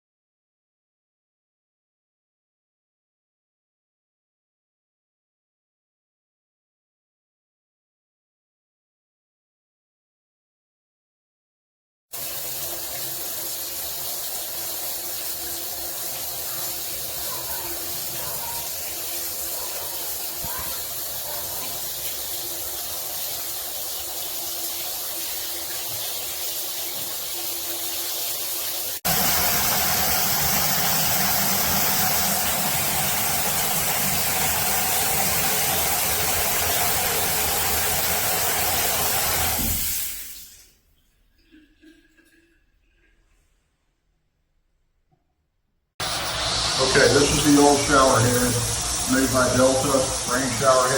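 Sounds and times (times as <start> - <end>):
water spraying from shower head: 12.2 - 40.6, 46.0 - 50.9.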